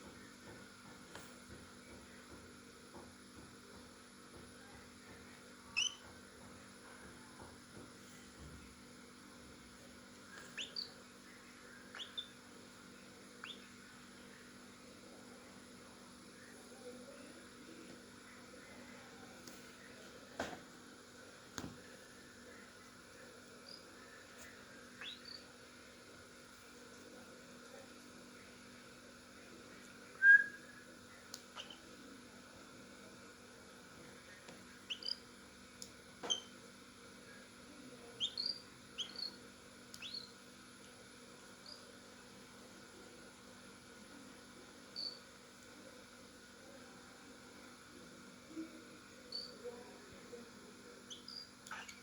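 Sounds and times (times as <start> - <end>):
low steady hum: 0.0 - 52.0
cockatiel chirp: 5.8 - 6.1, 10.4 - 11.0, 11.9 - 12.4, 13.4 - 13.7, 25.0 - 25.4, 34.9 - 35.2, 36.2 - 36.5, 38.2 - 39.4, 40.0 - 40.3.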